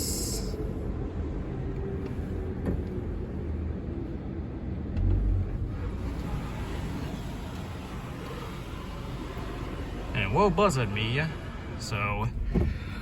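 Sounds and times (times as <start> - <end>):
low rumble of car creeping: 0.0 - 13.0.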